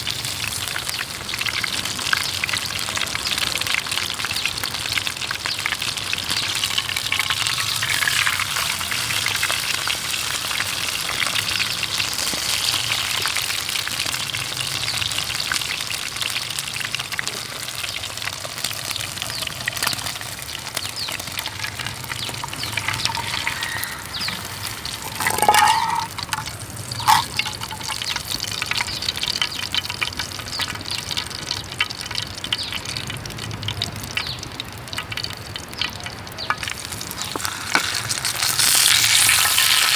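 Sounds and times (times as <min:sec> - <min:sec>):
food sizzling in a pan: 0:00.0 - 0:39.9
scrape with ringing tone: 0:21.2 - 0:28.0.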